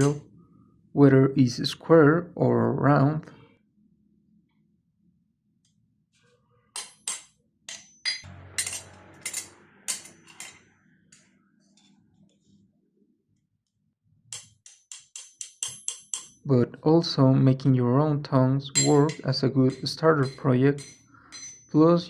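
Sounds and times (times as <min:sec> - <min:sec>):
tongs clinking on metal: 0:18.8 - 0:21.8.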